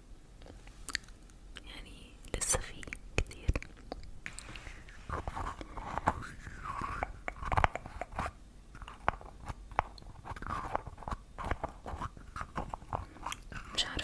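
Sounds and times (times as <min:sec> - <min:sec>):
crisp clicks and crunchy crackles: 0:02.7 - 0:14.0
soft breathy noise: 0:04.2 - 0:07.2.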